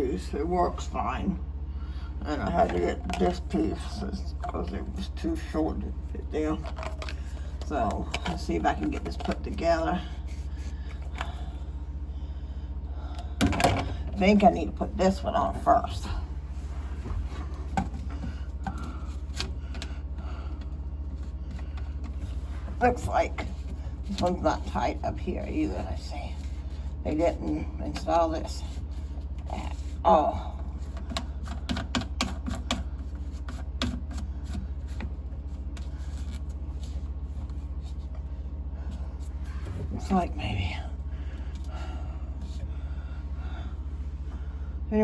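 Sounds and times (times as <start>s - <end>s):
low hum: 0.0s - 45.0s.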